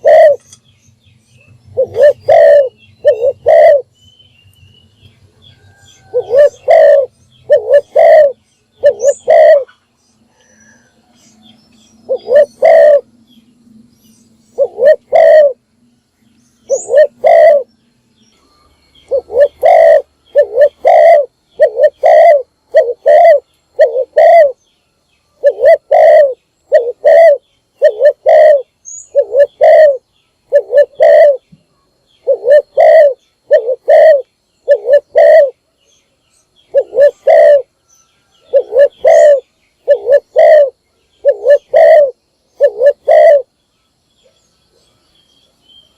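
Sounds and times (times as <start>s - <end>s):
dove cooing: 0.0s - 0.6s, 1.7s - 3.9s, 6.0s - 10.9s, 12.0s - 13.1s, 14.5s - 15.6s, 16.7s - 17.7s, 19.0s - 24.6s, 25.4s - 31.5s, 32.2s - 35.7s, 36.7s - 37.8s, 38.4s - 43.5s.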